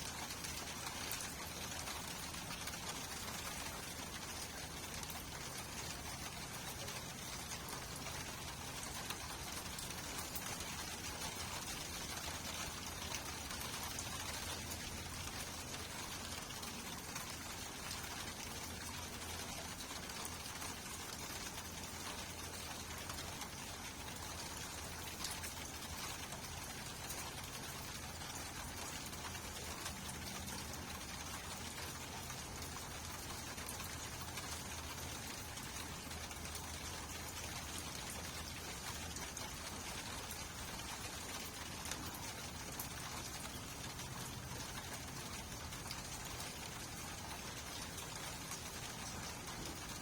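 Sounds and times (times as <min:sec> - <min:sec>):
rain hissing: 0:00.0 - 0:50.0
raindrop ticks: 0:00.0 - 0:50.0.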